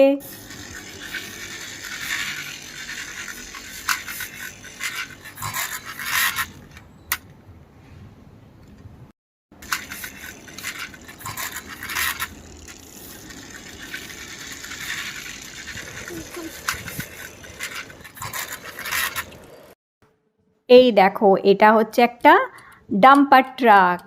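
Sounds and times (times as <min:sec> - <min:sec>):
plastic toy wheels scraping and rattling: 0:00.2 - 0:06.9, 0:09.6 - 0:19.8.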